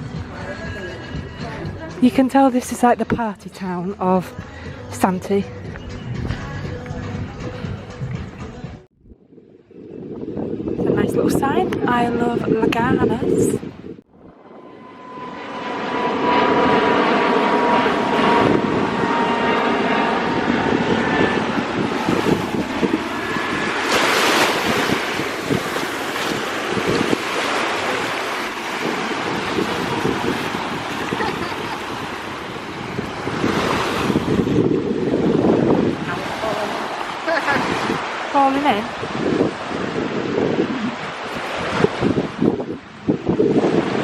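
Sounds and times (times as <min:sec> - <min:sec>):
wind buffeting microphone: 0:05.6 - 0:44.0
sea waves washing onto beach: 0:21.5 - 0:44.0.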